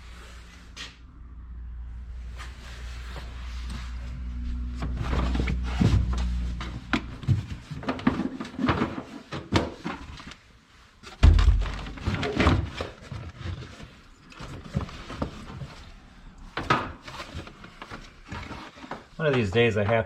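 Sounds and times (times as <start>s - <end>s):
objects knocking and clicking: 4.8s - 10.4s, 11.1s - 15.8s
heavy thump: 11.2s - 12.0s.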